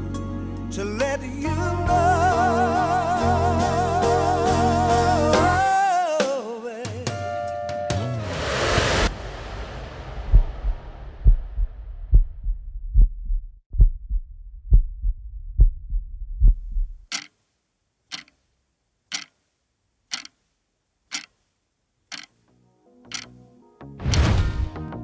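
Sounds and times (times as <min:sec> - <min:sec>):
heartbeat thumps: 0:10.0 - 0:17.1
clock ticking: 0:17.1 - 0:17.4, 0:18.1 - 0:18.4, 0:19.1 - 0:19.4, 0:20.1 - 0:20.4, 0:21.1 - 0:21.4, 0:22.1 - 0:22.4, 0:23.1 - 0:23.4.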